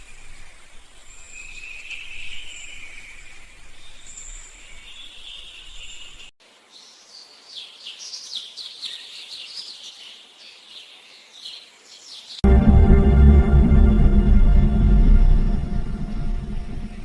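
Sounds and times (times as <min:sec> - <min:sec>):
songbirds chirping: 0:04.3 - 0:12.5
music: 0:12.4 - 0:17.0.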